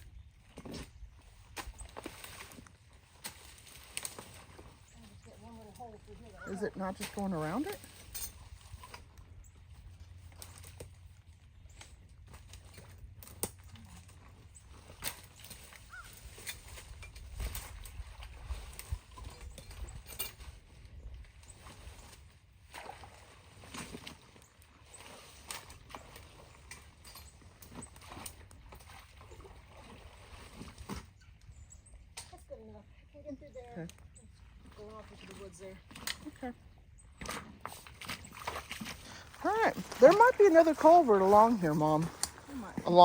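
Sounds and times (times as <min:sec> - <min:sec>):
water splashes: 0:22.6 - 0:26.7, 0:37.2 - 0:43.0
sticks and rocks knocking: 0:37.3 - 0:43.0.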